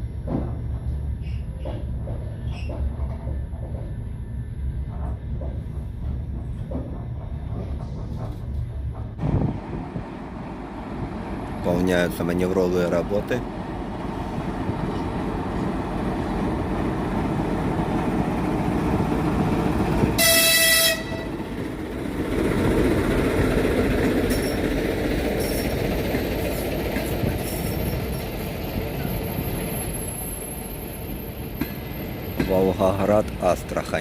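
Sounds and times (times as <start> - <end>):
train rumbling on rails: 0.0 - 34.0
locomotive horn toot: 20.2 - 21.4.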